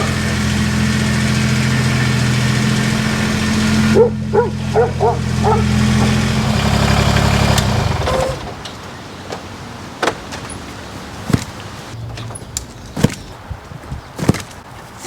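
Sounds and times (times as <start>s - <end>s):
machine hum: 0.0s - 8.7s
dog barking: 3.9s - 6.2s.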